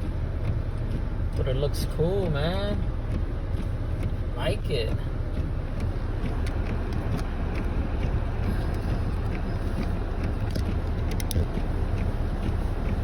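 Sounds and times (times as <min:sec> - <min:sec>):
car engine and tyres rumbling: 0:00.0 - 0:13.0
faint clicks: 0:05.3 - 0:13.0.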